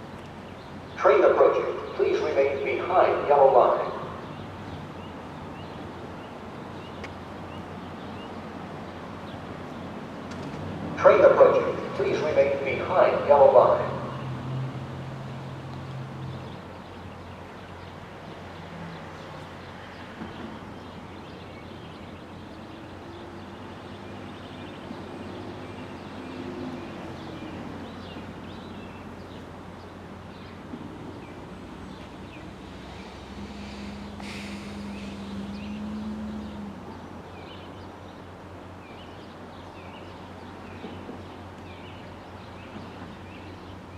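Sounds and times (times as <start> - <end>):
birds chirping: 0.0 - 10.3, 11.0 - 43.9
diesel train rumbling: 0.0 - 43.9
faint engine hum: 0.0 - 43.9
short hiss: 33.5 - 35.2.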